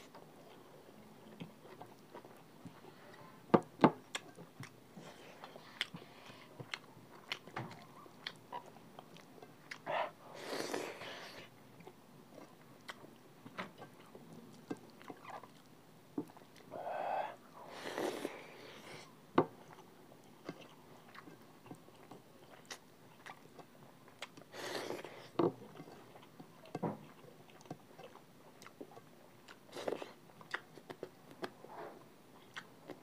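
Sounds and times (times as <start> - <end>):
person chewing: 4.1 - 13.1, 13.8 - 26.4, 27.0 - 31.5, 32.4 - 33.0
breathy noise: 16.7 - 19.1.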